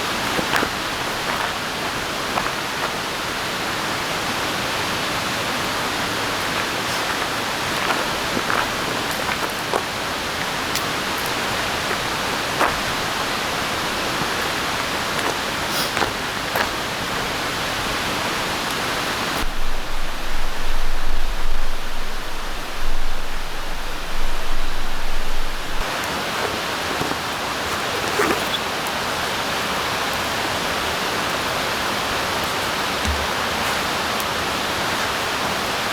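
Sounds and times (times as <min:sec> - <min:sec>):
rain falling in a forest: 0:00.0 - 0:35.9
low rumble: 0:19.4 - 0:25.9.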